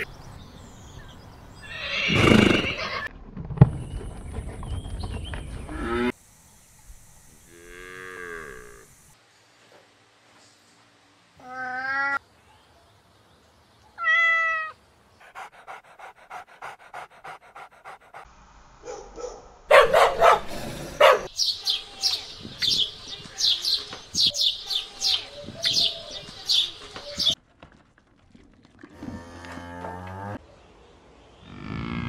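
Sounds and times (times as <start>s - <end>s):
cow mooing: 7.5s - 8.8s
cat meowing: 14.0s - 14.8s
dog panting: 15.2s - 18.3s
dog barking: 18.8s - 21.3s
sparrow chirping: 21.2s - 27.4s.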